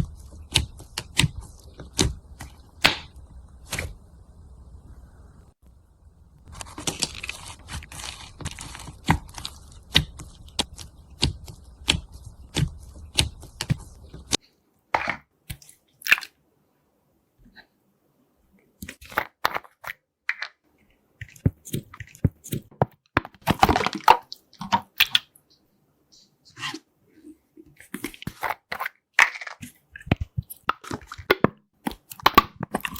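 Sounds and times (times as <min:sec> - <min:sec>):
background hum: 0:00.0 - 0:14.4
slime crackling and squishing: 0:06.4 - 0:14.4.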